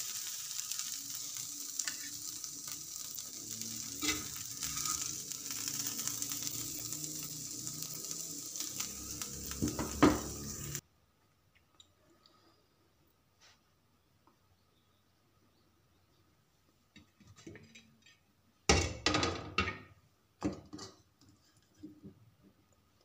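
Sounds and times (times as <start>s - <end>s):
chicken sizzling in a pan: 0.0s - 10.8s
metal spatula scraping a pan: 1.7s - 7.8s.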